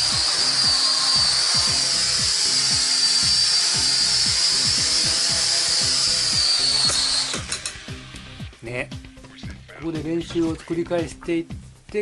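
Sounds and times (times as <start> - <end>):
toy drone propellers whining: 0.0 - 7.9.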